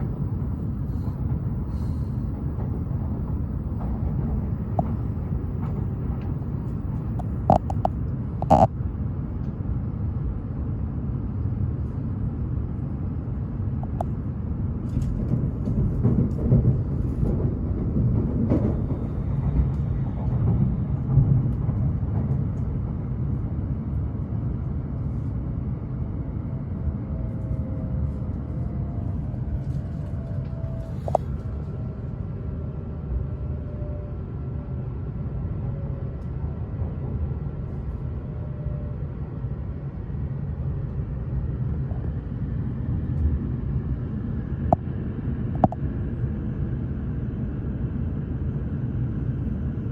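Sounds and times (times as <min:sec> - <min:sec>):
faint whining tones: 0:00.0 - 0:09.5, 0:26.7 - 0:32.0
train low rumble: 0:00.0 - 0:49.9.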